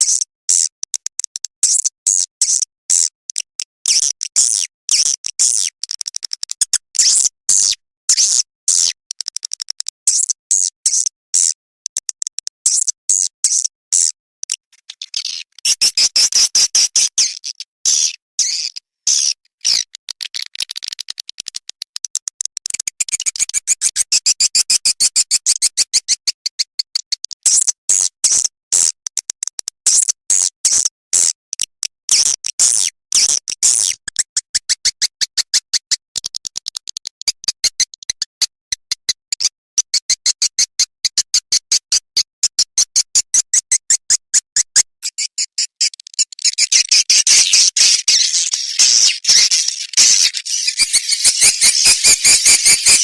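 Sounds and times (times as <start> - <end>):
electronic swiftlet call chirps: 45.0 - 53.0.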